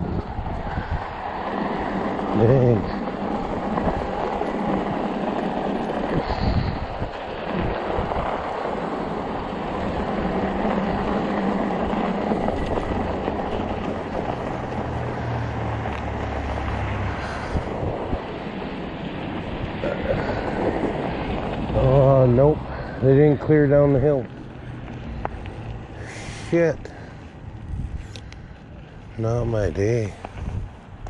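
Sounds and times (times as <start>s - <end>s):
bike jolts: 0.0s - 31.0s
bike tires rumbling over snow: 0.0s - 31.0s
low hum: 0.0s - 31.0s.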